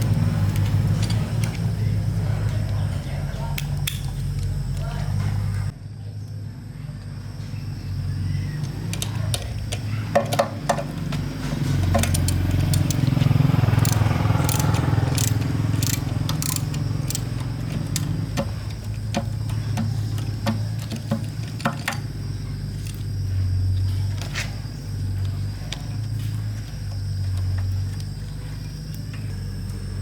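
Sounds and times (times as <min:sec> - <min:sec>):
metal tools clinking and knocking: 0:08.9 - 0:23.1.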